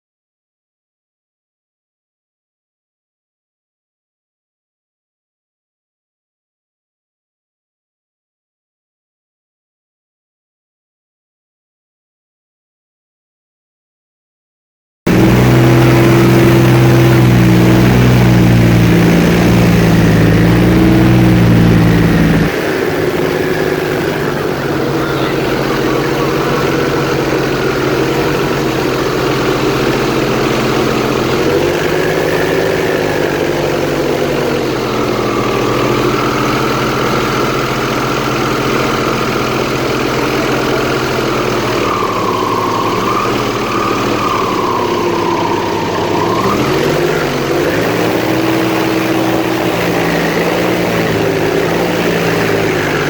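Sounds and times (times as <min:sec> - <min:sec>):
airboat engine and propeller: 0:15.1 - 0:53.0.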